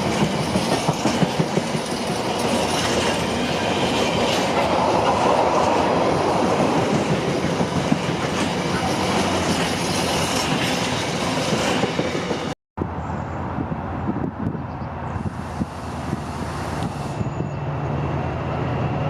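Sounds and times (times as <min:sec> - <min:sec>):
train wheels clattering over rail joints: 0:00.0 - 0:12.5.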